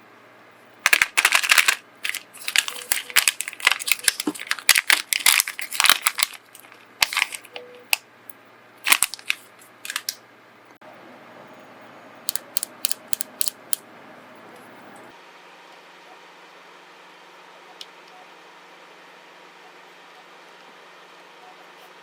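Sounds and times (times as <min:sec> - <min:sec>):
packaging crinkling: 0:00.8 - 0:08.0, 0:08.8 - 0:10.2
small items clicking and tapping: 0:00.8 - 0:08.0, 0:08.9 - 0:10.2.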